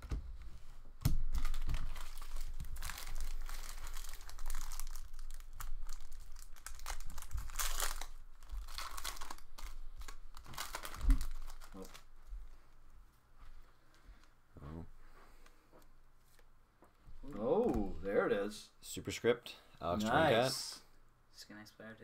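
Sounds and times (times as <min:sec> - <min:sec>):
foil wrapper crinkling and tearing: 0:01.0 - 0:12.1.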